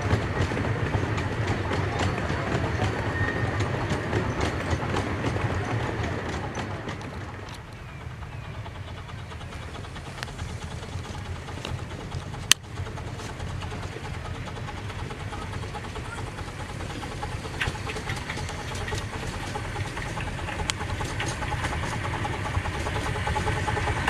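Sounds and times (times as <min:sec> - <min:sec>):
steam train rolling past: 0:00.0 - 0:24.0
wheels clicking over rail joints: 0:00.0 - 0:24.0.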